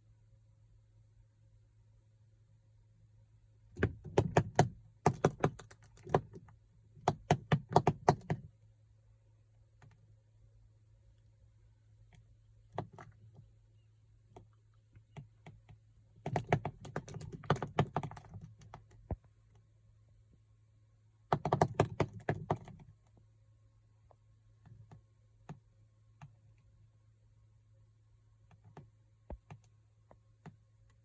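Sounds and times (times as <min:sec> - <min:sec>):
rapid clicking and tapping: 0:03.8 - 0:08.4, 0:16.2 - 0:19.2, 0:21.3 - 0:22.8.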